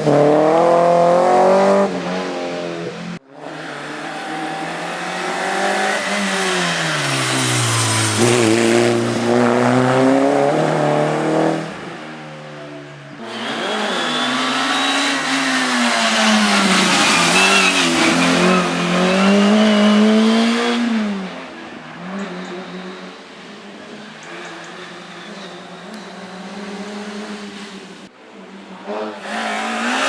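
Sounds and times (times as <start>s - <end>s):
race car engine revving: 0.0s - 12.0s, 13.2s - 23.2s.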